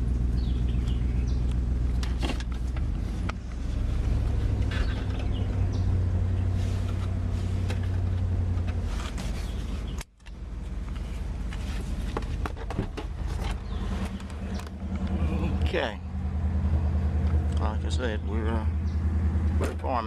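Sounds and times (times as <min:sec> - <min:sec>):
pickup engine droning: 0:00.0 - 0:20.0
rattles and clicks: 0:00.8 - 0:03.6, 0:06.8 - 0:15.7.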